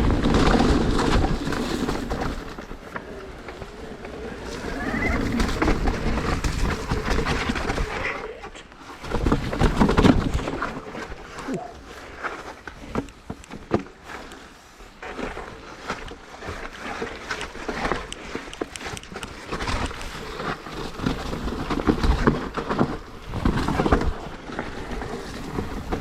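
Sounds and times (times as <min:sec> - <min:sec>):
bike knocking over bumps: 0:00.0 - 0:08.2
bike rattling: 0:00.0 - 0:26.0
bike tyres on trail: 0:00.0 - 0:26.0.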